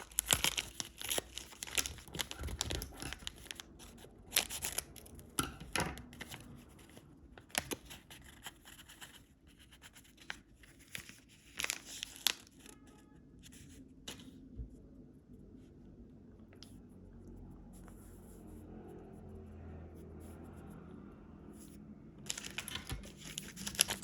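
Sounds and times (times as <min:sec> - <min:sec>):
wrapper crinkling and tearing: 0:00.0 - 0:05.3, 0:10.9 - 0:12.7, 0:22.2 - 0:24.0.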